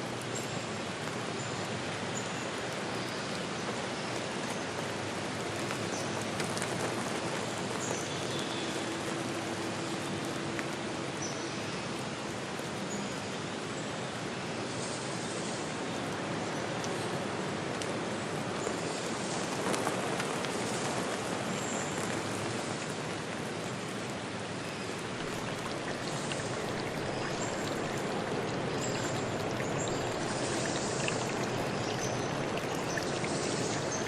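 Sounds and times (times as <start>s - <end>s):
rain falling outdoors: 0.0s - 34.0s.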